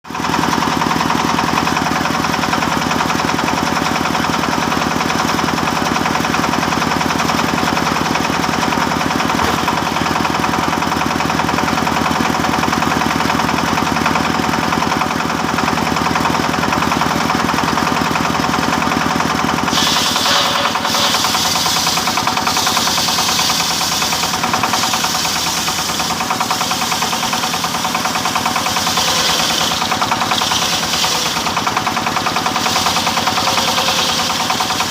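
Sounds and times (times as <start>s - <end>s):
engine-driven wood saw knocking: 0.1s - 34.9s
saw blade hissing through wood: 19.7s - 31.7s.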